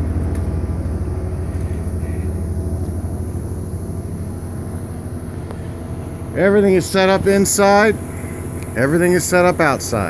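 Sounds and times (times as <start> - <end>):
engine humming: 0.0 - 10.0.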